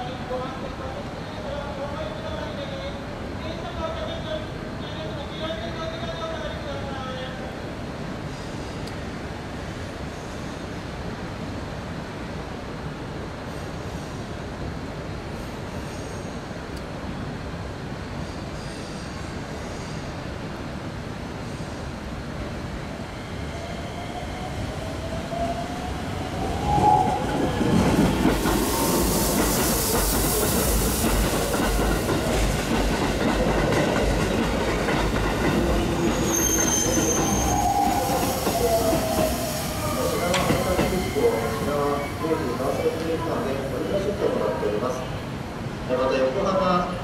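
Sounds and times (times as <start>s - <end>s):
train rumbling on rails: 0.0s - 47.0s
train whine: 21.4s - 46.0s
high squeal: 35.8s - 43.0s.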